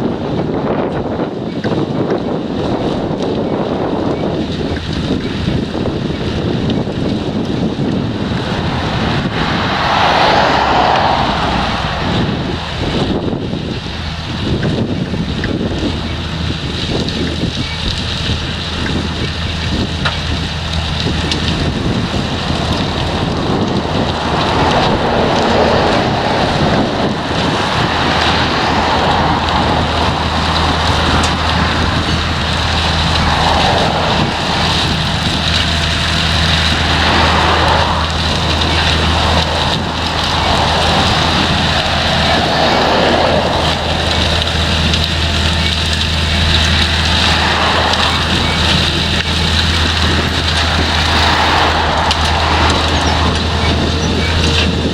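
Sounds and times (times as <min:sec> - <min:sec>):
low engine drone: 0:02.1 - 0:54.9
harvester rushing rattling noise: 0:02.6 - 0:54.9.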